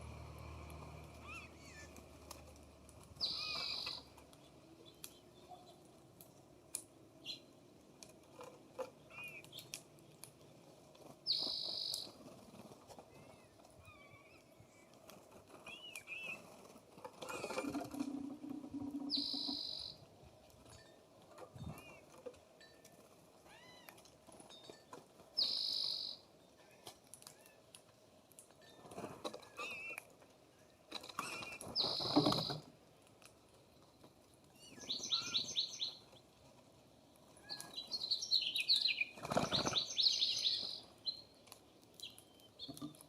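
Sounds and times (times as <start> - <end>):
songbirds chirping: 0.0 - 22.3, 24.3 - 27.7, 28.4 - 32.7, 33.3 - 43.0
rising and falling bird call: 3.2 - 4.1, 18.9 - 19.9, 34.6 - 36.0
birds chirping: 3.2 - 5.9, 9.0 - 12.2, 17.4 - 20.1, 25.4 - 26.2, 31.2 - 32.6, 34.6 - 36.2, 37.4 - 43.0.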